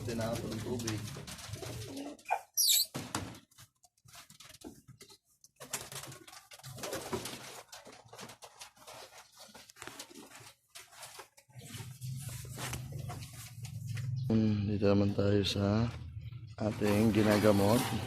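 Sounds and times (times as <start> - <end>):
pigeons scuffling and fluttering: 0.0 - 2.3, 2.9 - 14.2
pigeon cooing: 1.5 - 2.7.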